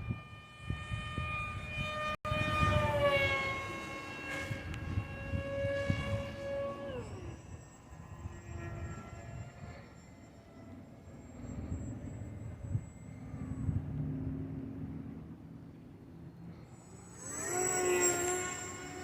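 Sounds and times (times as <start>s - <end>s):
model plane electric motor whining: 0.0s - 15.0s, 15.7s - 19.0s.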